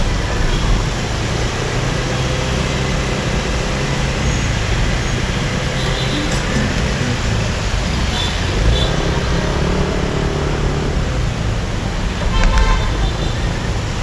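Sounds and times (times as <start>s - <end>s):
wind and road noise: 0.0s - 14.0s
brief sharp pitched sound: 5.8s - 7.6s.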